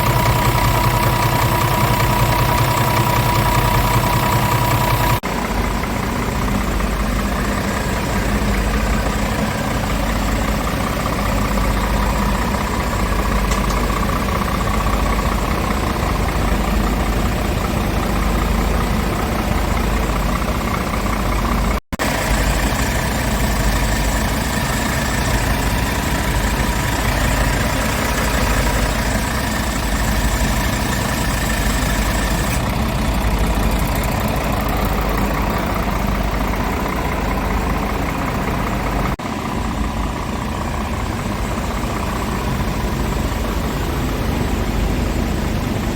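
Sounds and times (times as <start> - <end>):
diesel truck engine idling: 0.0 - 45.9.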